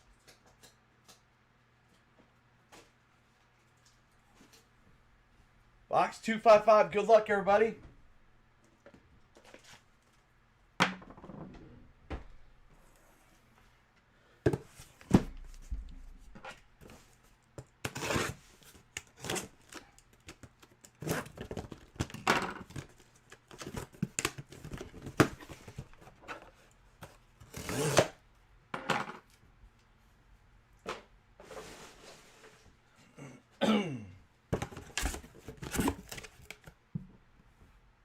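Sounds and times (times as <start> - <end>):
packaging tearing and rustling: 34.8 - 36.7.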